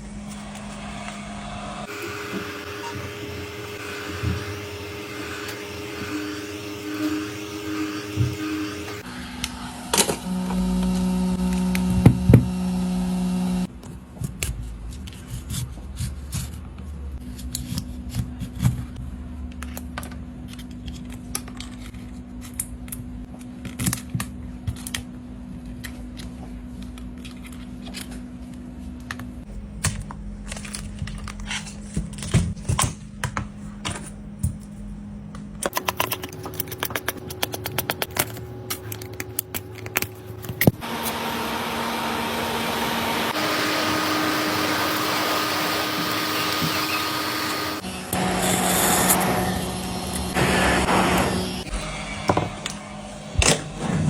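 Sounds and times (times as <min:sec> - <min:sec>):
steady hum: 0:00.0 - 0:13.7, 0:29.4 - 0:54.0
hand tools clicking and tapping: 0:35.6 - 0:40.8.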